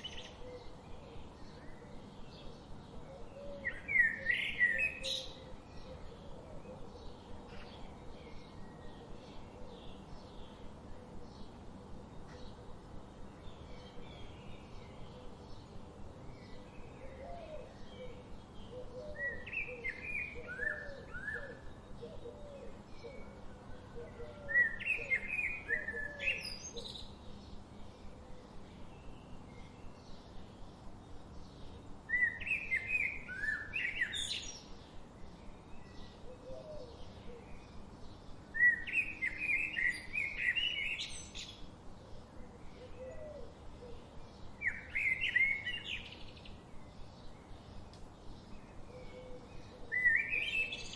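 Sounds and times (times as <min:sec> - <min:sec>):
songbird singing: 0:00.0 - 0:50.9.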